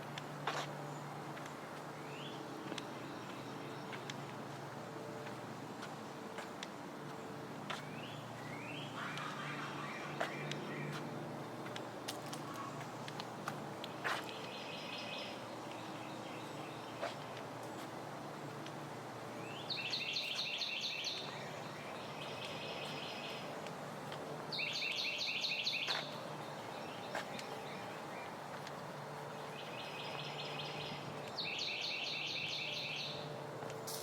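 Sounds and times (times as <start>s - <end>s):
songbird trilling: 19.5s - 23.5s, 24.5s - 26.1s, 29.6s - 33.2s.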